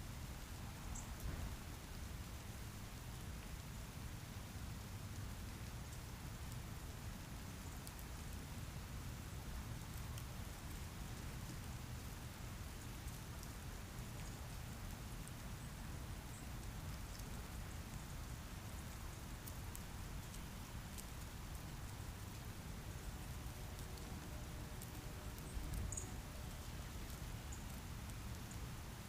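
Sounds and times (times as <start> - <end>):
faint ticks: 4.5 - 28.9.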